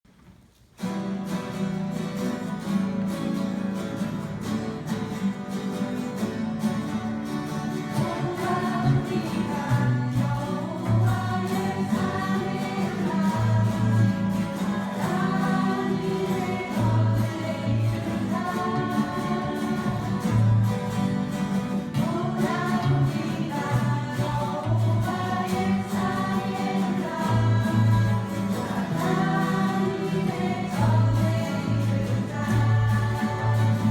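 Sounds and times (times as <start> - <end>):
guitar ensemble playing: 0.8 - 33.9
group of voices singing: 7.7 - 33.9.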